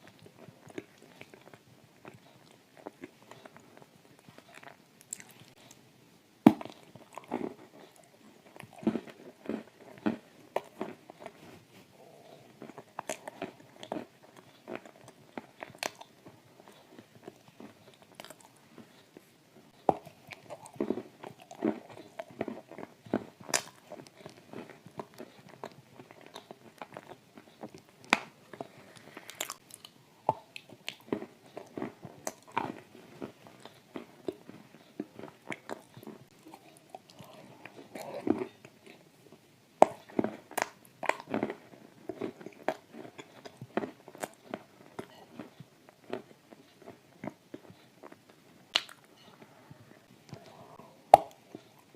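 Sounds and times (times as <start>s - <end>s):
crunchy cookie chewing: 0.0s - 5.9s, 6.5s - 51.9s
wet mouth clicks: 48.7s - 49.2s, 50.3s - 51.9s.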